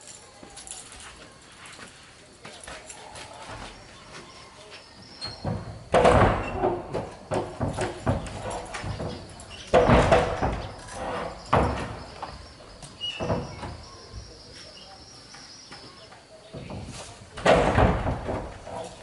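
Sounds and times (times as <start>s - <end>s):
knocks and bumps: 5.2s - 14.7s, 15.7s - 19.0s.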